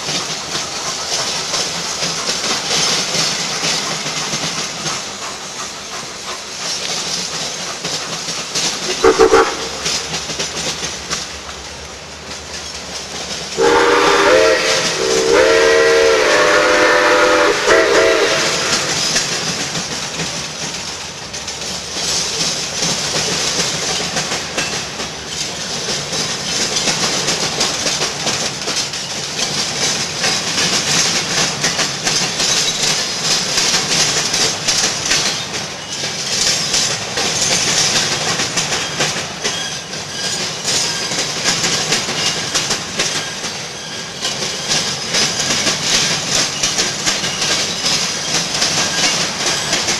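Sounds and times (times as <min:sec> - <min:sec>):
passing train running: 0:00.0 - 0:49.9
steam locomotive whistle: 0:08.9 - 0:09.9, 0:13.6 - 0:19.2.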